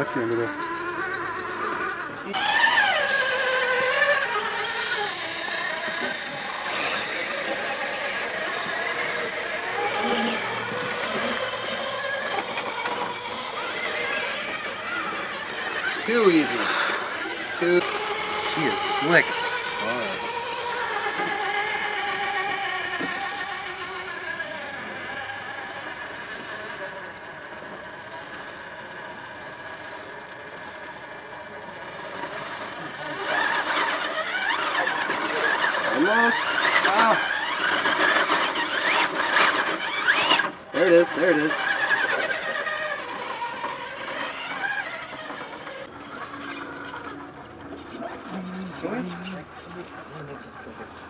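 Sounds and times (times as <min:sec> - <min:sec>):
toy car motor whining: 0:00.0 - 0:51.0.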